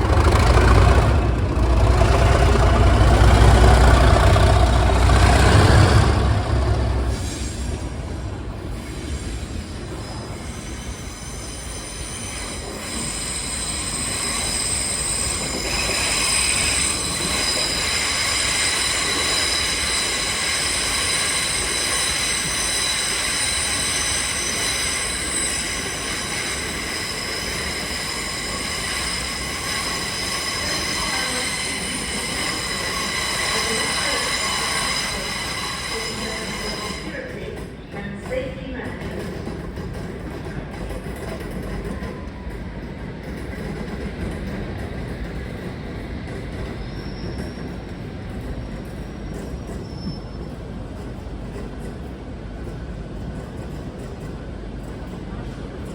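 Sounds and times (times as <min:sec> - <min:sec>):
loud low diesel engine: 0:00.0 - 0:07.2
train wheels squealing on rails: 0:00.0 - 0:55.9.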